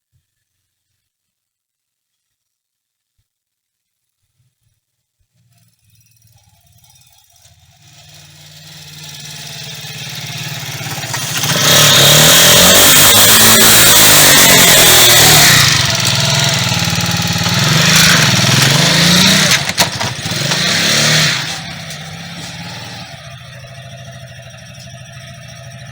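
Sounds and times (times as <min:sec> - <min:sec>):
motorcycle engine revving: 0:06.8 - 0:25.9.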